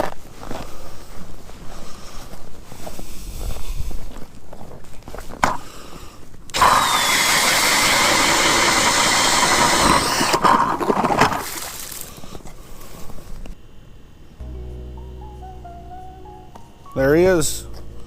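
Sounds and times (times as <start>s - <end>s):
power ice auger drilling: 6.5s - 12.1s.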